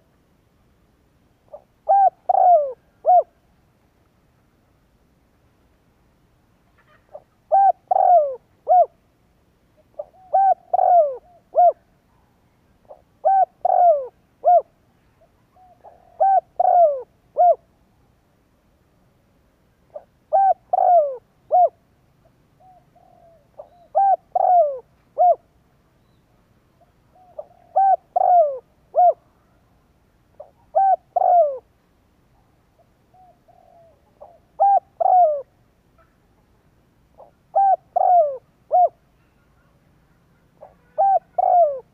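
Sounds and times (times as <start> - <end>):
dove cooing: 1.5 - 3.4, 6.8 - 9.0, 9.8 - 11.9, 12.8 - 14.8, 15.5 - 17.7, 19.9 - 21.8, 22.6 - 25.5, 27.1 - 29.6, 30.4 - 31.7, 32.8 - 36.2, 37.2 - 39.8, 40.5 - 41.9.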